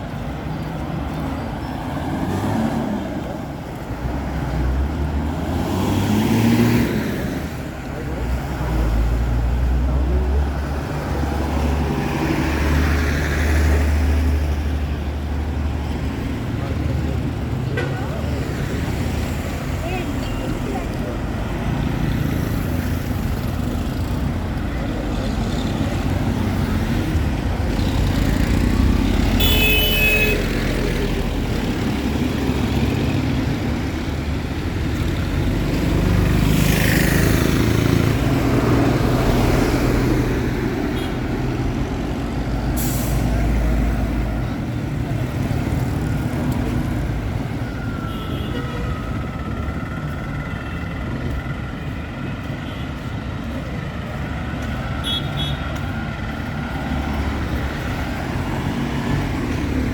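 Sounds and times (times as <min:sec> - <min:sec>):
heavy vehicles passing: 0:00.0 - 0:59.9
vehicle horn blast: 0:29.4 - 0:30.4, 0:55.0 - 0:55.6.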